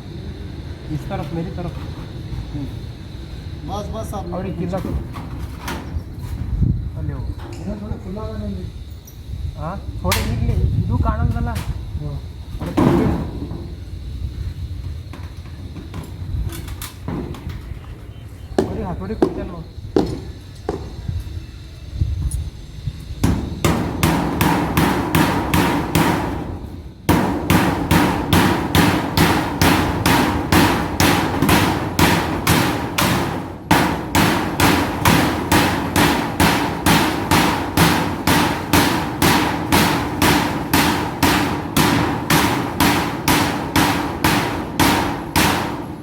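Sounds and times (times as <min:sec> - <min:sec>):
hammer striking nails through metal: 0:23.2 - 0:46.0.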